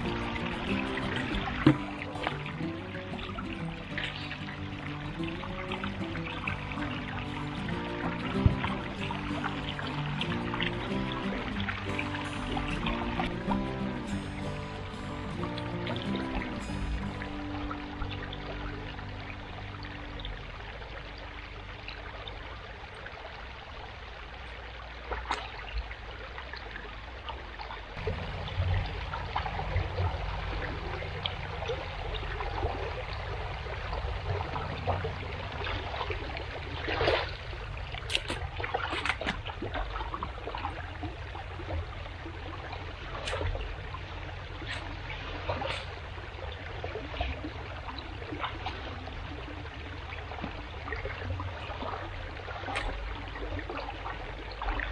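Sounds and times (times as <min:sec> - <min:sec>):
splashes and knocks: 0:00.0 - 0:02.8, 0:43.2 - 0:43.7
water running and trickling: 0:00.0 - 0:54.9
low rumble: 0:28.0 - 0:45.1.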